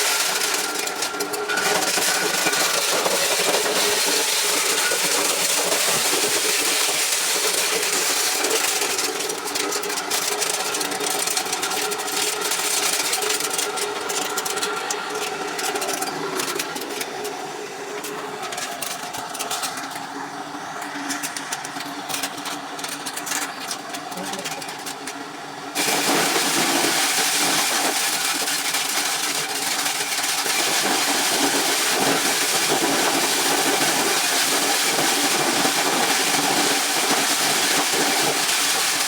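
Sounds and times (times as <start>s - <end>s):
corn-shelling machine rattling: 0.0s - 17.4s, 18.0s - 20.1s, 20.8s - 39.0s
engine running: 0.0s - 25.2s.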